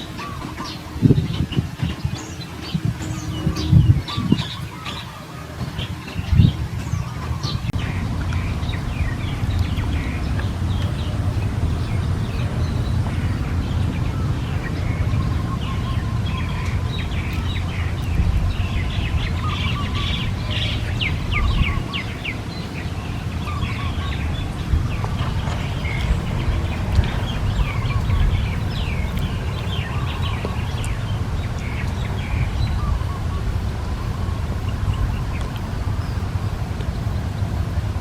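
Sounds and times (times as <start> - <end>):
small birds chirping: 0.0 - 38.0
steady low rumble: 0.0 - 38.0.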